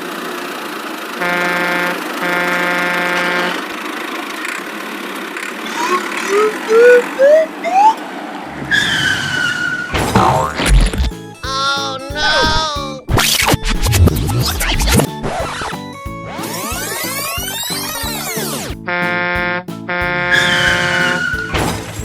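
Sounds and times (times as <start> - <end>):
horn honking: 1.1 - 3.9, 12.2 - 22.0
cartoon motor running: 5.4 - 8.0, 10.1 - 21.4
rising slide whistle: 5.6 - 8.0, 20.2 - 21.6
falling whistle: 5.7 - 8.0, 20.3 - 21.6.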